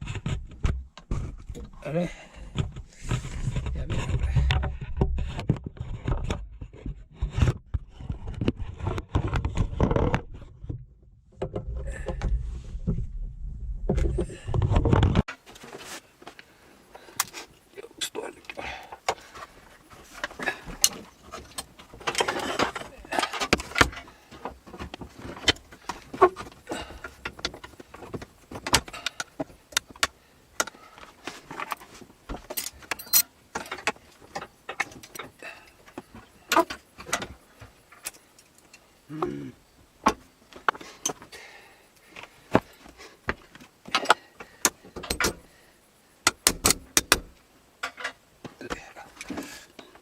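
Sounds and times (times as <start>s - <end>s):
tools clicking and knocking: 31.5s - 37.3s, 43.9s - 45.5s, 46.2s - 48.2s.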